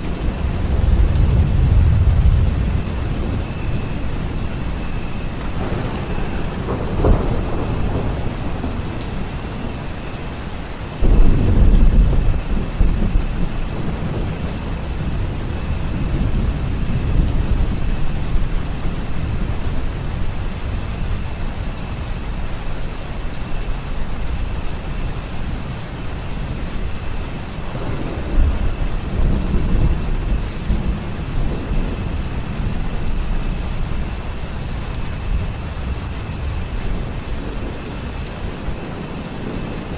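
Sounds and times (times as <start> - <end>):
thunder rumbling: 0.0 - 22.8, 23.6 - 39.9
steady rain: 0.0 - 39.9.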